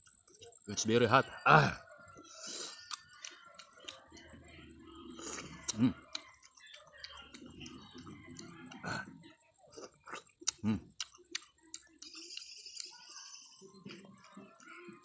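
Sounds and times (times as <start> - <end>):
voiced grunts: 1.2 - 1.8, 8.8 - 9.2
person chewing and sucking fruit: 1.6 - 15.0.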